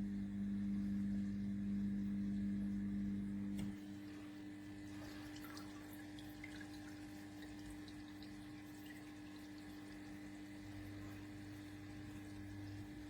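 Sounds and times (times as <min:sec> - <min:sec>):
low electric hum: 0:00.0 - 0:13.0
water dripping and trickling: 0:04.8 - 0:13.0.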